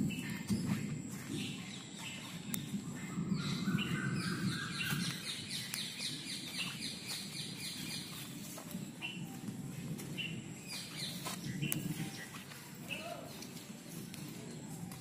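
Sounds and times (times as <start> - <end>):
birds chirping: 0.0 - 14.9
low rumble on microphone: 0.0 - 15.0.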